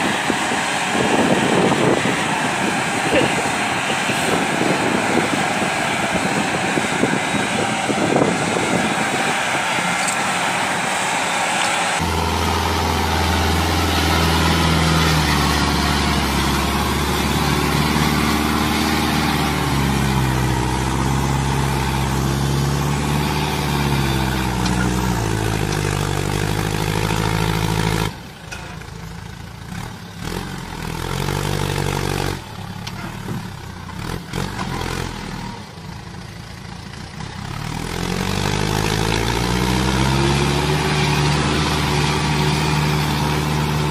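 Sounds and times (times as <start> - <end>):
rough tractor engine: 0.0 - 43.9
tractor engine revving: 0.0 - 43.9
quiet engine running steadily: 28.1 - 30.2, 35.5 - 37.6.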